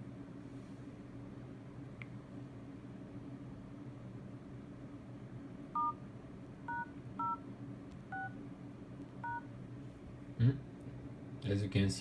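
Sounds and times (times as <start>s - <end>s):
two-tone keypad beeps: 5.8s - 6.0s, 6.7s - 7.4s, 8.1s - 8.4s, 9.2s - 9.4s.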